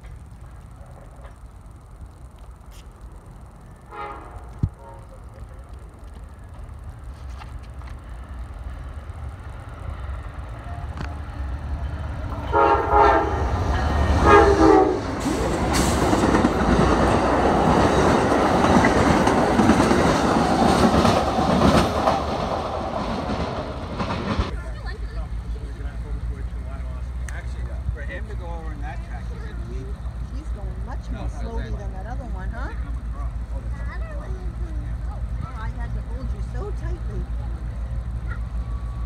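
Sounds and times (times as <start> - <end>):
train wheels rumbling on rails: 0.0 - 39.0
train horn blasts: 3.9 - 5.2, 12.4 - 15.2.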